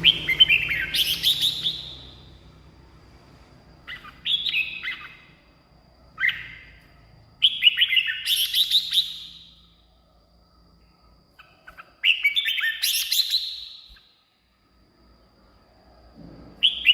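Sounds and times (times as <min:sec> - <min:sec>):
bird singing chirping phrases: 0:00.0 - 0:02.6, 0:03.8 - 0:10.0, 0:10.8 - 0:14.3, 0:16.6 - 0:16.9.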